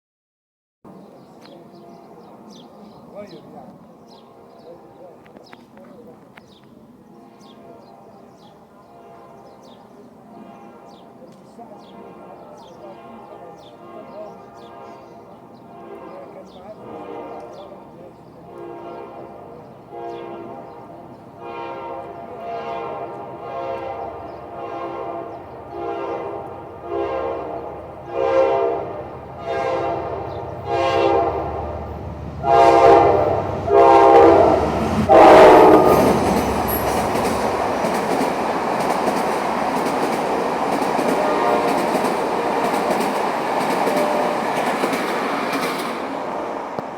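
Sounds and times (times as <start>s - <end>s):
locomotive horn short blasts: 21.4s - 31.6s, 32.4s - 37.0s
train wheels clattering on rail: 34.7s - 46.9s.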